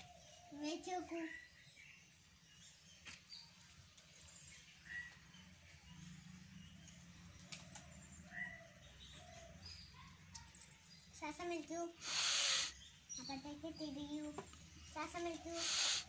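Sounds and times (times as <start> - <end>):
faint bird chirps: 7.4 - 16.0.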